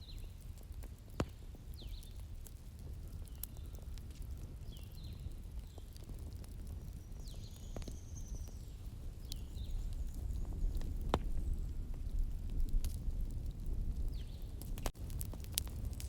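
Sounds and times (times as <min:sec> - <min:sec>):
small birds chirping: 0:00.0 - 0:00.4, 0:01.2 - 0:02.3, 0:03.0 - 0:11.8, 0:14.0 - 0:14.9
bonfire crackling and popping: 0:00.0 - 0:16.0.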